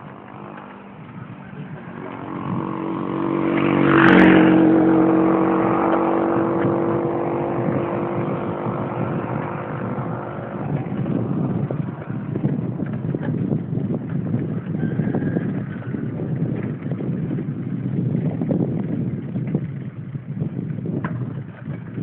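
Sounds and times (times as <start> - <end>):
vehicle engine passing: 0.0 - 13.9.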